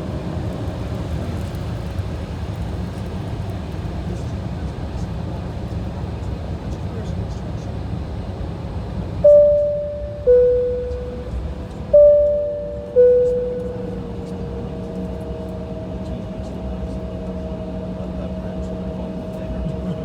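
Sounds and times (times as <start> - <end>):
cabin chime ding-dong: 9.2 - 20.0
cabin hum: 9.2 - 20.0.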